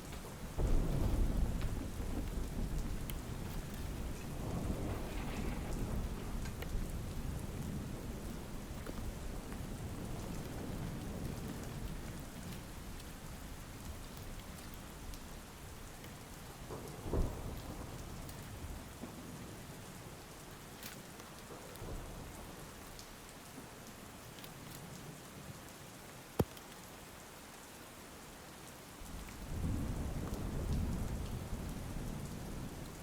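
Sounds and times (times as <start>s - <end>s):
low thunder rumble: 0.0s - 14.0s, 29.4s - 33.0s
steady rain: 0.0s - 33.0s.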